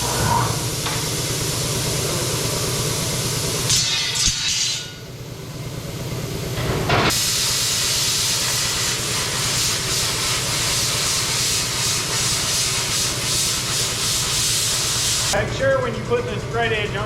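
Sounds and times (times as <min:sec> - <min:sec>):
low hum: 0:00.0 - 0:03.4
plasma cutter hissing: 0:00.0 - 0:04.9, 0:07.0 - 0:15.4.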